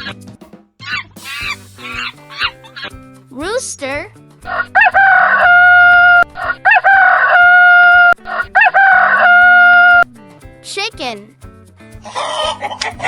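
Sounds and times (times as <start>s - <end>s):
rooster crowing: 4.5s - 10.0s.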